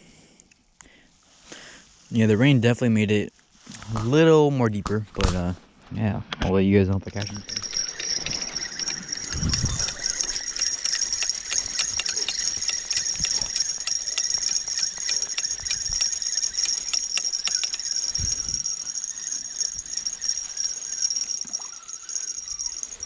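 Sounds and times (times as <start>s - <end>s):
clicks: 7.0s - 18.7s
crickets trilling: 7.0s - 23.0s.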